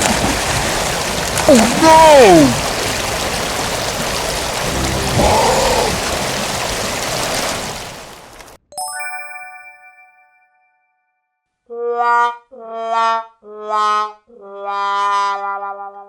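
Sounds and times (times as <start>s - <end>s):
rushing rain-like noise: 0.0s - 8.6s
bright chime sound effect: 8.7s - 11.2s.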